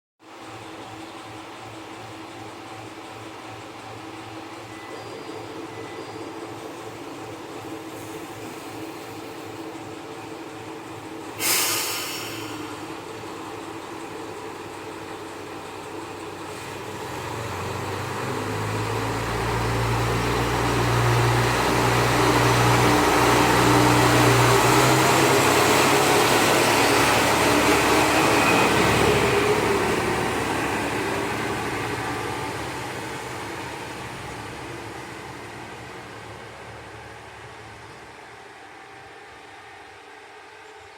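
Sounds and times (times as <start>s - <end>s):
diesel railcar engine under load: 0.2s - 40.9s.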